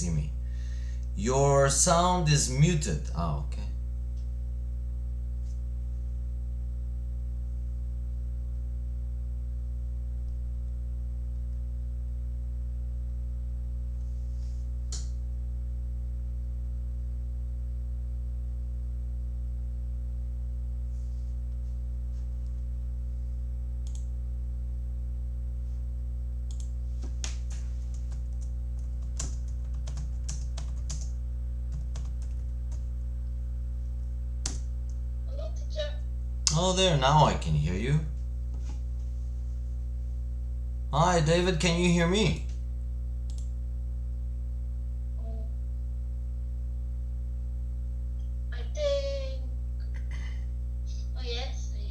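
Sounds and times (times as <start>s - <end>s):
steady low hum: 0.0s - 51.9s
computer keyboard typing: 26.5s - 32.9s, 34.4s - 34.7s.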